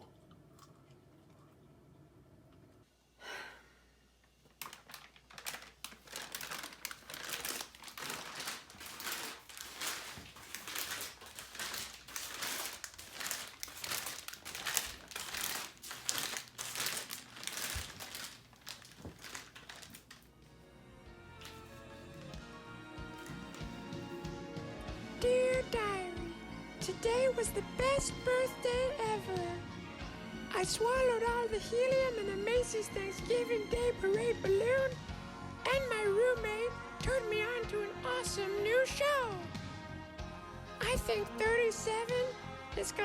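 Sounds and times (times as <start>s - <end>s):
plastic wrapper crinkling: 4.4s - 20.3s, 21.4s - 22.4s, 23.2s - 23.9s.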